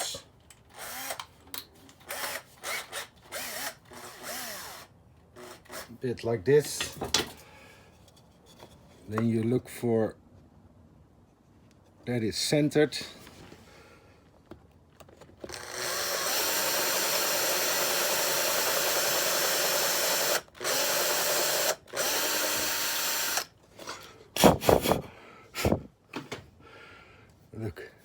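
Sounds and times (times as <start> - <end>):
power drill drilling wood: 2.1 - 5.8, 15.4 - 23.5.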